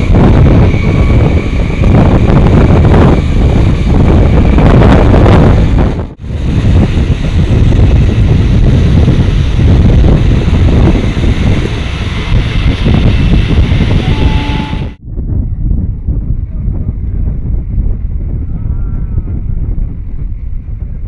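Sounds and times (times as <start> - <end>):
passenger train rumbling: 0.0 - 15.0
wind buffeting microphone: 0.0 - 21.0.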